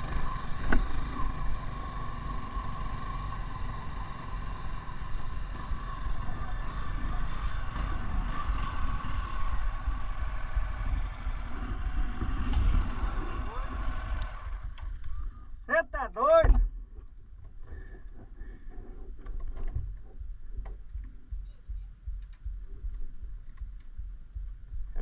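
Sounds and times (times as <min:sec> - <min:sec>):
motorcycle engine climbing under load: 0:00.0 - 0:15.6, 0:16.4 - 0:25.0.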